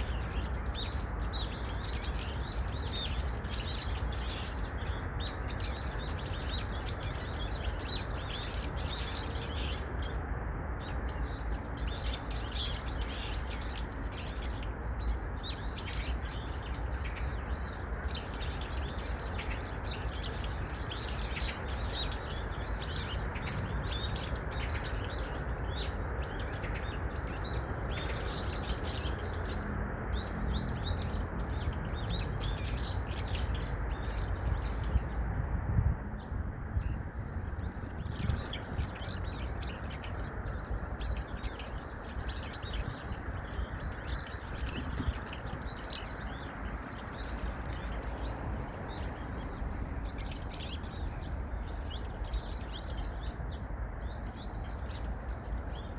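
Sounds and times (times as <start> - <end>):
songbirds chirping: 0.0 - 55.9.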